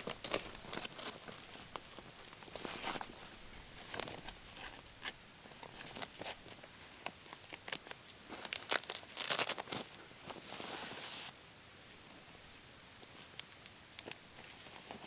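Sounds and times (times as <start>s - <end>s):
bags rustling and crinkling: 0.0s - 11.3s
steady hiss: 0.0s - 15.0s.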